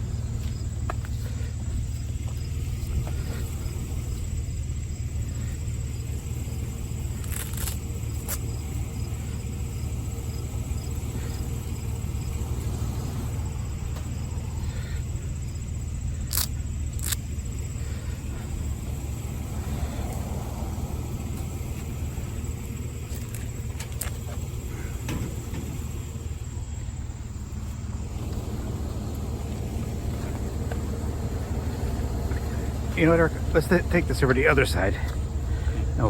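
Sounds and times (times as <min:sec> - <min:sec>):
vehicle engine running: 0:00.0 - 0:36.0
sharp clicks: 0:07.2 - 0:08.5, 0:16.2 - 0:17.3.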